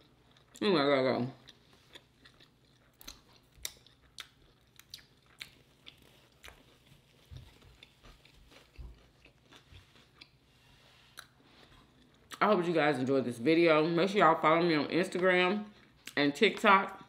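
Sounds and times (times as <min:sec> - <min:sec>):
chewing and mouth clicks: 0:01.4 - 0:10.4.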